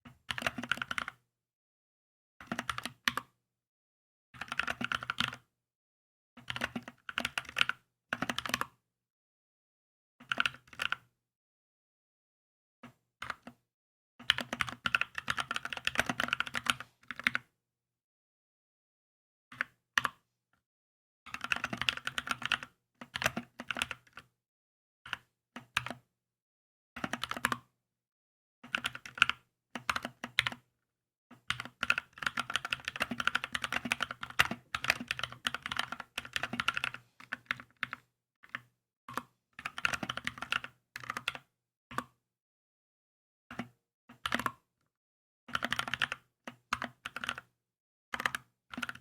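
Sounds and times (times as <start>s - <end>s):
mechanical keyboard typing: 2.4s - 3.3s, 4.4s - 5.4s, 14.3s - 17.4s, 21.3s - 24.3s, 27.0s - 27.7s, 28.7s - 30.6s, 31.5s - 41.5s, 43.5s - 44.6s, 45.5s - 47.5s, 48.2s - 49.0s.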